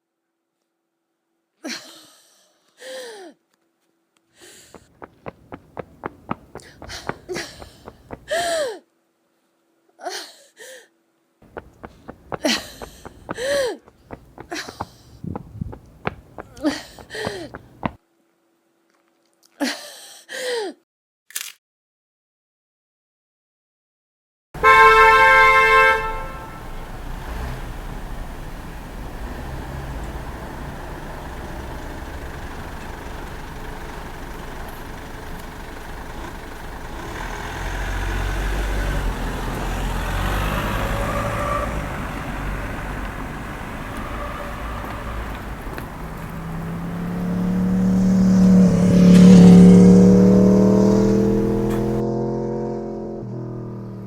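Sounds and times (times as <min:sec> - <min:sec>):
street traffic rumble: 0:04.4 - 0:08.6, 0:11.4 - 0:18.0, 0:24.6 - 0:54.0
motor vehicle passing close: 0:04.6 - 0:08.5, 0:11.4 - 0:18.0, 0:24.6 - 0:54.0.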